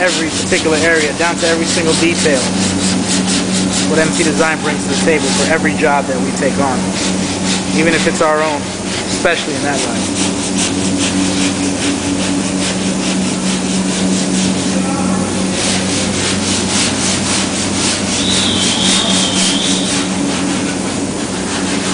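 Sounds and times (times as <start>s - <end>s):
constant low hum: 0.0s - 21.9s
sanding metal scraping strokes: 0.0s - 21.9s
brief high whine: 18.2s - 20.1s.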